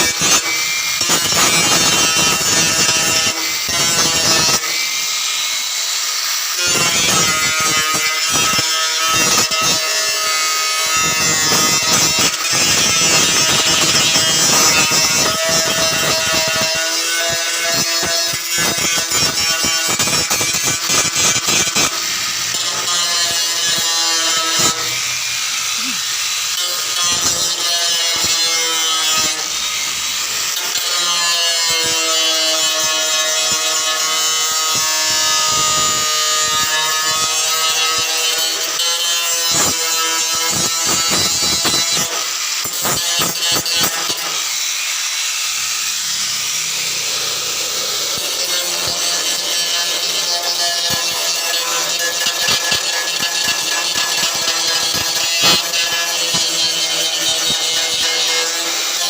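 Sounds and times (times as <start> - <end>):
welder arc crackling: 6.7 - 30.8, 45.4 - 59.0.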